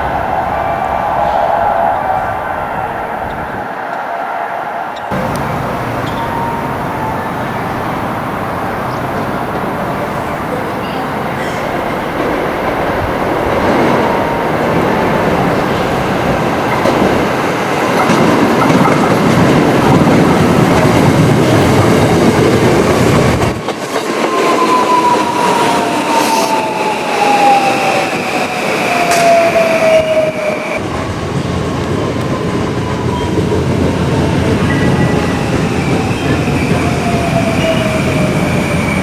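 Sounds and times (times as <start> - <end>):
wheel and rail noise: 0.0 - 4.4, 5.0 - 39.0
electric train braking: 5.0 - 17.4
train motor whine: 5.1 - 17.2.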